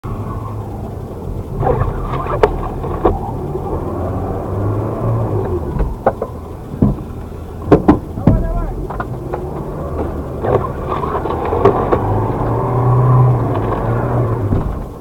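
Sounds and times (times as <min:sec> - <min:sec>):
sharp knocks and clicks: 0:05.4 - 0:15.0.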